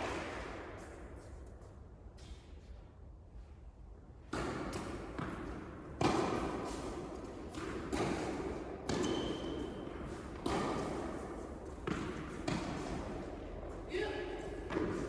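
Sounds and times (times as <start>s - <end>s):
tennis ball bouncing on court: 4.3s - 15.0s
tennis ball struck by rackets: 4.3s - 15.0s.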